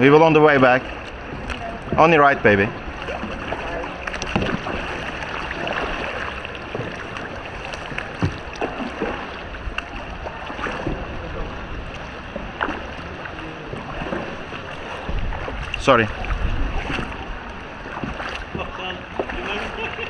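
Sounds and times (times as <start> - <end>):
paddle splashing in water: 0.0 - 20.0
water washing: 0.0 - 20.0
water dripping: 3.0 - 11.0.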